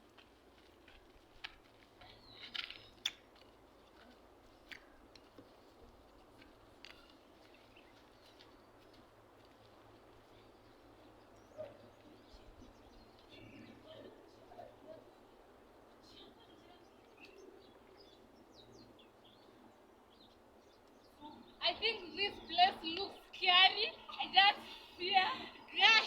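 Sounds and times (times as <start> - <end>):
faint outdoor hiss: 0.0 - 26.0
faint clicks and scrapes: 0.1 - 10.5.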